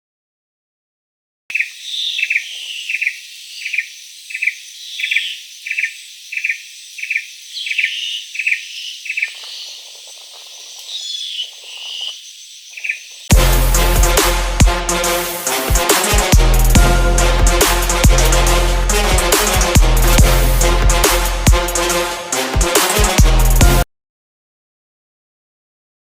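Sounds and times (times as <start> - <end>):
high-pitched insect drone: 1.5 - 13.3
repeated short chirping call: 1.5 - 13.3
scattered animal calls: 1.5 - 13.3.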